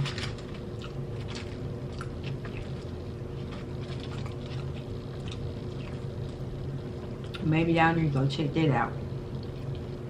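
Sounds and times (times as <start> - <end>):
chewing crunches: 0.0 - 7.4
steady low hum: 0.0 - 10.0.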